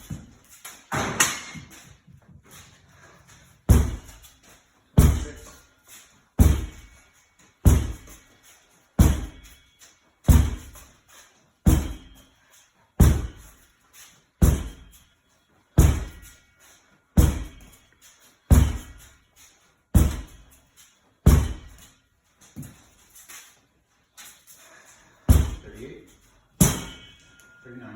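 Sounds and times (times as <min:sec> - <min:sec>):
medicine ball thudding on wall: 0:03.7 - 0:04.2, 0:05.0 - 0:05.6, 0:06.4 - 0:06.9, 0:07.6 - 0:08.2, 0:09.0 - 0:09.5, 0:10.3 - 0:10.8, 0:11.7 - 0:12.1, 0:13.0 - 0:13.5, 0:14.4 - 0:14.8, 0:15.8 - 0:16.4, 0:17.2 - 0:17.6, 0:18.5 - 0:19.1, 0:20.0 - 0:20.4, 0:21.3 - 0:21.8, 0:25.3 - 0:25.8.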